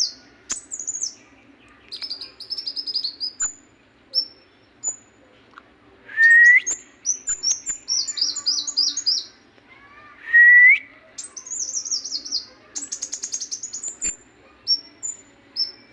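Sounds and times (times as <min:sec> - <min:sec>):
songbird whistling and chirping: 0:01.9 - 0:05.1, 0:06.1 - 0:09.4, 0:10.2 - 0:15.9.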